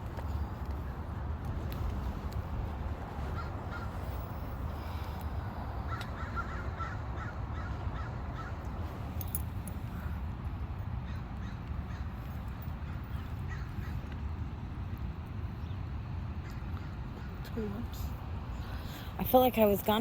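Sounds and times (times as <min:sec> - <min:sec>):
crows cawing: 0:03.2 - 0:05.2, 0:05.8 - 0:08.8, 0:11.0 - 0:14.1.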